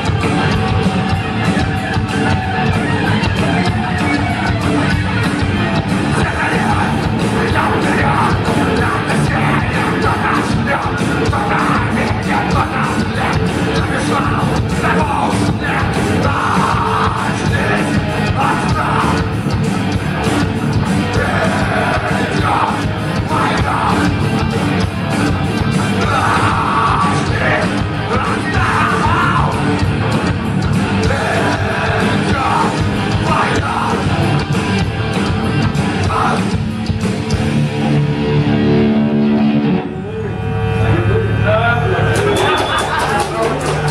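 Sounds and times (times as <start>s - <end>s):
fast drumming: 0.0s - 37.9s, 42.1s - 43.9s
distorted guitars: 0.0s - 43.9s
shouted vocals: 6.1s - 19.4s, 21.0s - 24.8s, 25.7s - 29.8s, 31.0s - 34.3s.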